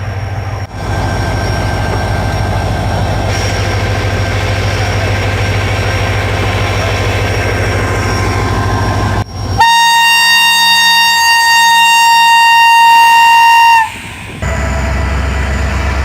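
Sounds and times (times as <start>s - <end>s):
train rumbling: 0.0s - 16.0s
locomotive air horn blast: 9.6s - 14.9s.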